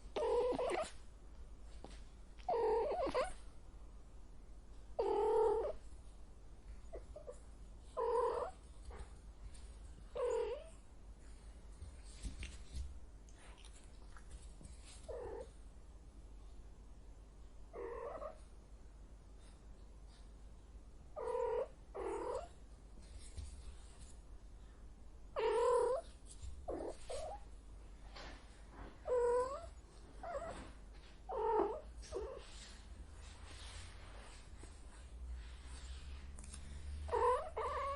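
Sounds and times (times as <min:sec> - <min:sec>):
cat meowing: 0:02.5 - 0:03.4, 0:37.1 - 0:37.9.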